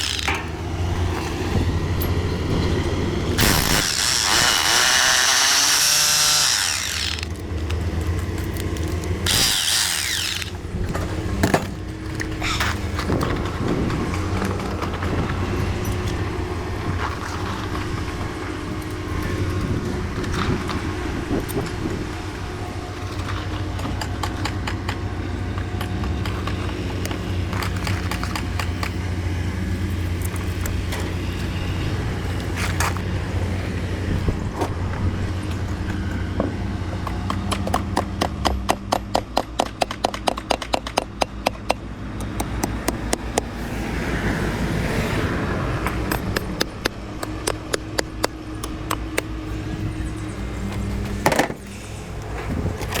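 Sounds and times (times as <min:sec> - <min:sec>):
knocks and clanks: 0:00.0 - 0:08.2
construction machinery rumbling: 0:00.0 - 0:53.0.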